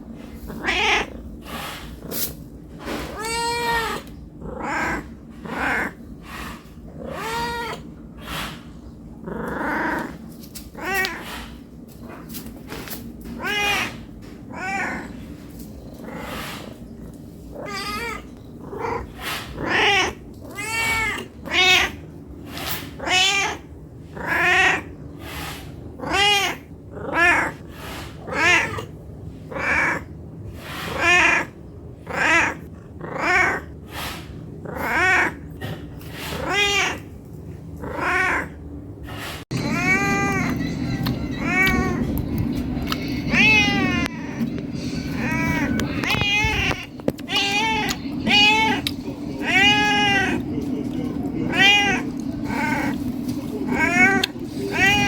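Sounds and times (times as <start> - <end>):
cat meowing: 0.5 - 1.2, 3.0 - 6.0, 7.0 - 7.9, 10.8 - 11.4, 13.3 - 15.2, 17.5 - 22.0, 23.0 - 24.9, 26.0 - 27.6, 28.2 - 28.9, 29.5 - 30.1, 30.9 - 31.5, 32.1 - 33.7, 34.7 - 35.4, 36.2 - 37.1, 37.8 - 38.6, 39.5 - 50.5, 51.2 - 55.0.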